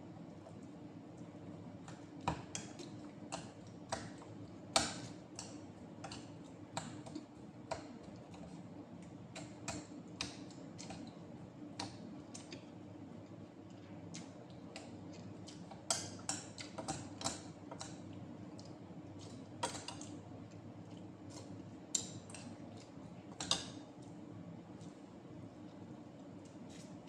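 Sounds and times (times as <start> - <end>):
steady low hum: 0.0 - 27.0
person chewing: 13.2 - 23.0.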